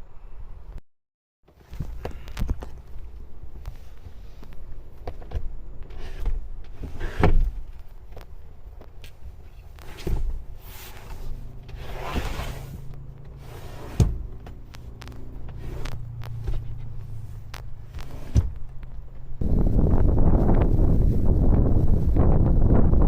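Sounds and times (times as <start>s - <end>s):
low steady hum: 1.6s - 23.0s
wind buffeting microphone: 9.7s - 23.0s
sharp knocks and clunks: 13.2s - 19.3s.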